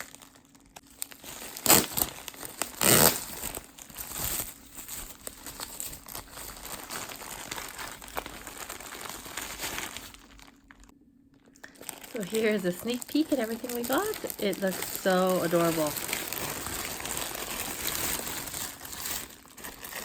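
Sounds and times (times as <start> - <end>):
packaging crinkling and tearing: 0.0 - 20.0.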